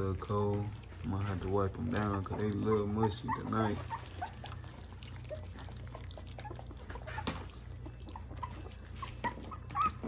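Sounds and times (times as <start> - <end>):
puppies lapping food: 0.0 - 10.0
puppy whimpers: 0.9 - 10.0.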